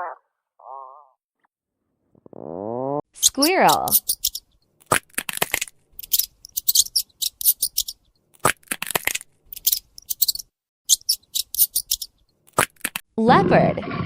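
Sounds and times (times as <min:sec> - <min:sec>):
squirrel chattering: 0:03.2 - 0:13.0.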